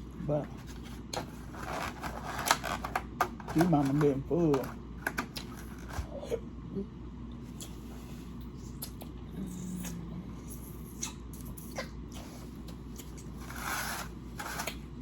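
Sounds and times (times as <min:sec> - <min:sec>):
person chewing food: 0:07.3 - 0:13.4
person humming: 0:09.2 - 0:10.6.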